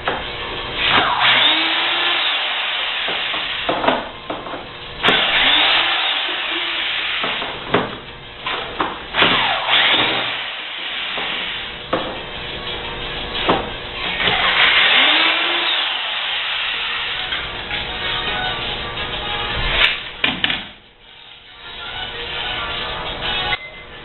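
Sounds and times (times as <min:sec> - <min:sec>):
power drill motor spinning: 0:01.1 - 0:03.7, 0:05.0 - 0:07.6, 0:09.2 - 0:11.8, 0:14.0 - 0:17.6.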